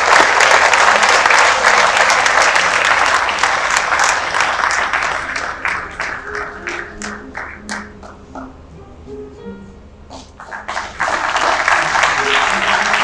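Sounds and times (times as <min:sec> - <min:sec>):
audience applauding: 0:00.0 - 0:08.1, 0:10.4 - 0:13.0.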